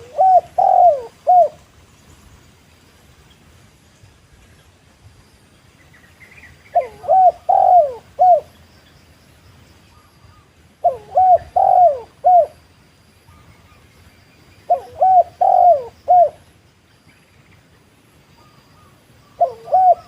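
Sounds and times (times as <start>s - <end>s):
dove cooing: 0.0s - 1.6s, 6.7s - 8.6s, 10.3s - 12.6s, 14.7s - 16.4s, 18.4s - 20.0s.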